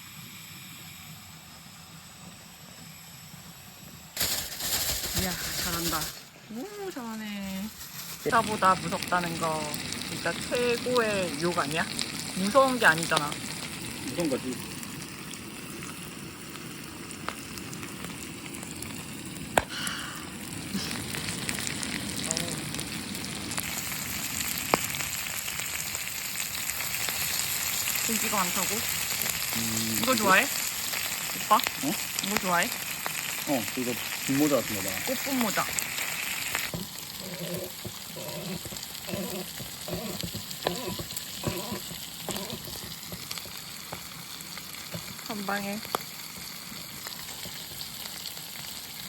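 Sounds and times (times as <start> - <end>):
food sizzling: 4.1 - 49.0
utensil scraping a pan: 36.7 - 43.6.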